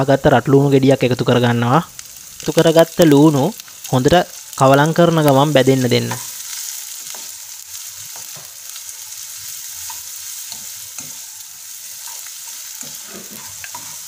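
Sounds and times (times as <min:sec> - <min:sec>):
onions sizzling in oil: 0:00.0 - 0:14.0
wooden spatula scraping pan: 0:12.0 - 0:14.0.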